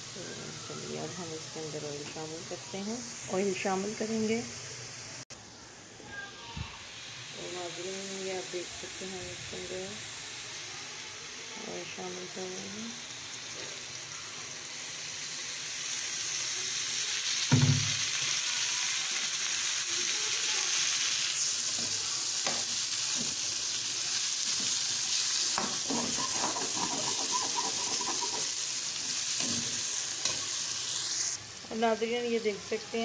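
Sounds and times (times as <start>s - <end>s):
vegetables sizzling in oil: 0.0s - 33.0s
loud knock: 17.5s - 18.0s
metal spoon scraping pan: 25.6s - 28.5s.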